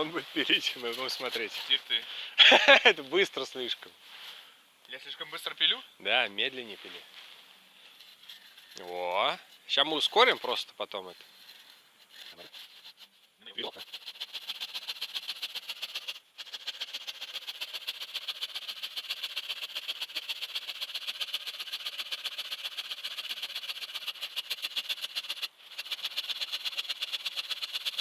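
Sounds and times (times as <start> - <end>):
hand saw cutting tree trunk: 13.7 - 28.0.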